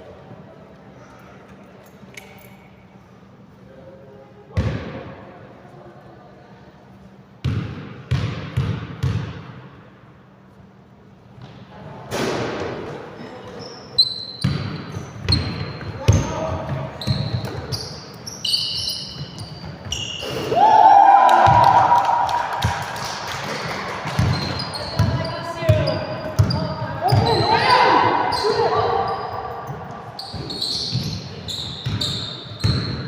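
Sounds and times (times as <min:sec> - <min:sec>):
voices in a hall: 0:00.0 - 0:08.1, 0:09.6 - 0:33.0
basketball bouncing on court: 0:07.4 - 0:09.6, 0:14.4 - 0:18.0, 0:22.6 - 0:28.9, 0:29.7 - 0:33.0
short high squeaks: 0:13.5 - 0:15.8, 0:17.0 - 0:20.4, 0:24.3 - 0:33.0.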